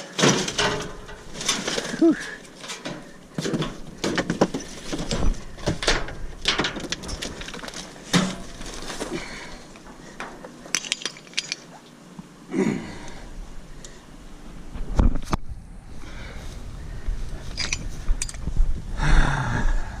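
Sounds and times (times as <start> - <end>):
small metal parts clinking: 0.0 - 11.8, 17.4 - 18.5.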